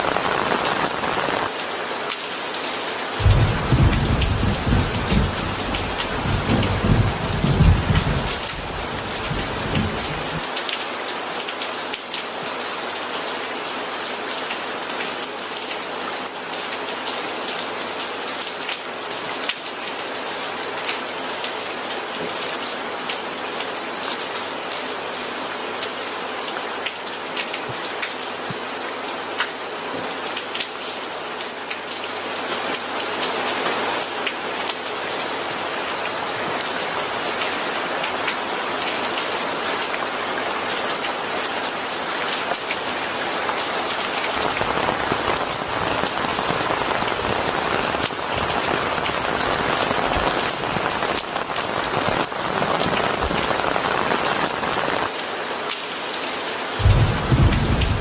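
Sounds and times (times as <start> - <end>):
heavy rain pattering: 0.0 - 58.0
thunder rumble: 3.2 - 10.4, 44.3 - 53.6, 56.8 - 58.0.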